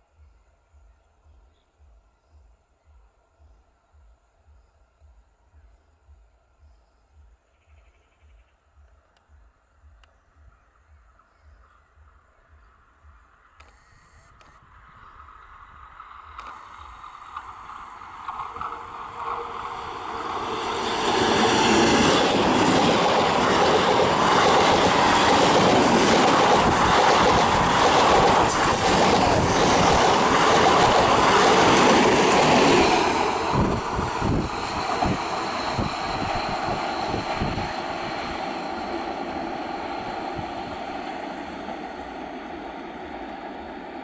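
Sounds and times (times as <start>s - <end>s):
electric train passing at speed: 14.6s - 44.0s
wheels clacking over rail joints: 16.4s - 33.5s.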